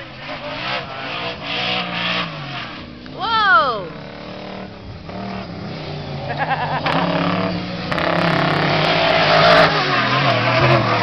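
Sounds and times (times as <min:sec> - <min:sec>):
off-road race engines running hard: 0:00.0 - 0:11.0.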